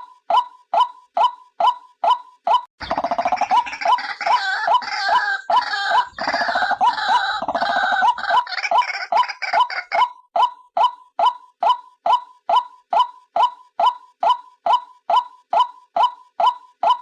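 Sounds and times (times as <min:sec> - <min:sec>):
repeated hooked bird notes: 0:00.0 - 0:17.0
harsh croaking bird calls: 0:02.8 - 0:10.2.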